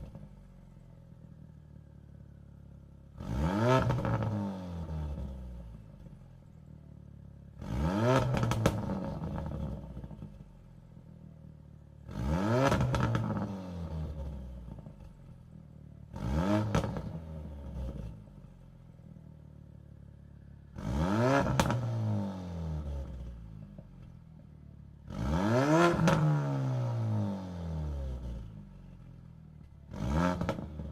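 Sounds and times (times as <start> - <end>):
car engine revving: 3.2 - 5.7, 7.5 - 10.3, 12.0 - 15.2, 16.1 - 18.2, 20.7 - 23.4, 25.0 - 28.7, 29.9 - 30.9.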